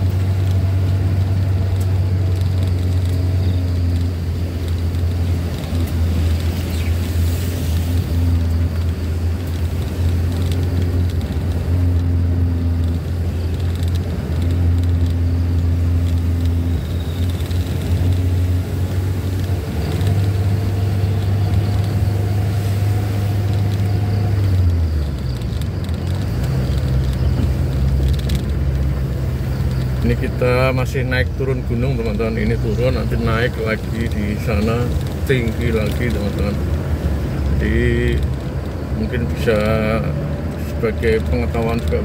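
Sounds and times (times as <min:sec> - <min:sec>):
engine droning inside cabin: 0:00.0 - 0:42.0.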